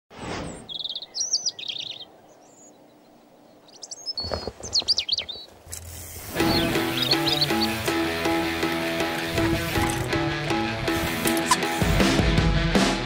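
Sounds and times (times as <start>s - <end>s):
songbirds singing: 0.5s - 10.1s.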